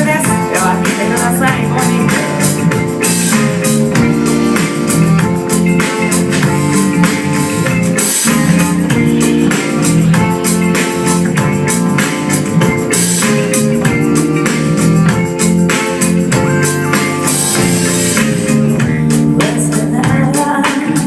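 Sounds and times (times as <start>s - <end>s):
live band playing: 0.0s - 21.0s.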